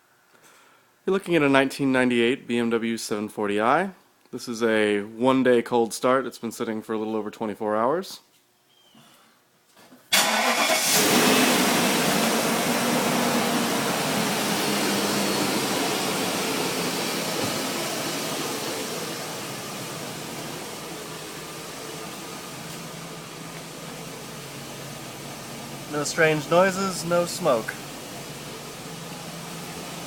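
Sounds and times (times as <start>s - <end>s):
car engine starting and idling: 10.1s - 30.0s.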